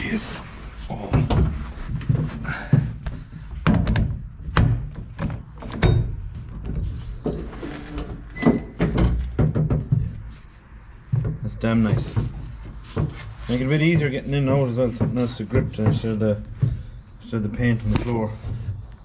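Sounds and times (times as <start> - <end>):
body bumping bare metal floor: 1.0 - 10.4
thumps and knocks in car shell: 1.2 - 7.5, 8.5 - 10.3.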